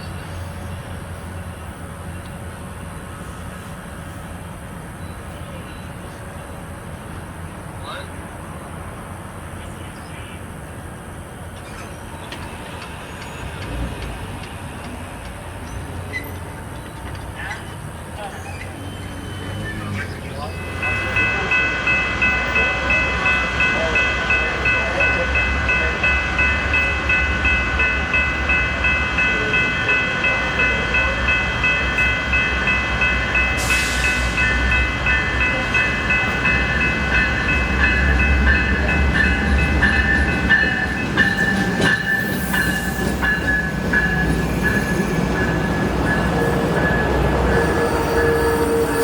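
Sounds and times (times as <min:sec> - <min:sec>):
diesel locomotive engine rumble: 0:00.0 - 0:49.0
train bell ringing: 0:15.7 - 0:49.0.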